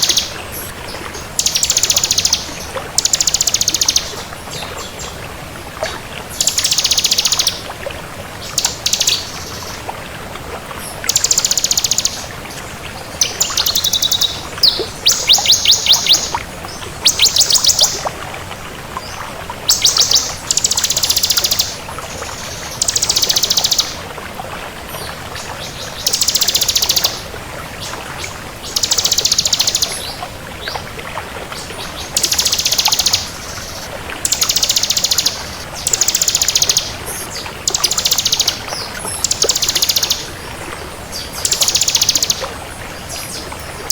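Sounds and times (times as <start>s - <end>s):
bird singing high rapid trills: 1.3s - 4.2s, 6.4s - 7.6s, 8.6s - 9.8s, 11.1s - 12.3s, 13.2s - 16.4s, 17.0s - 18.0s, 19.7s - 21.8s, 22.5s - 24.0s, 26.0s - 27.2s, 28.7s - 30.1s, 32.1s - 40.3s, 41.2s - 42.4s.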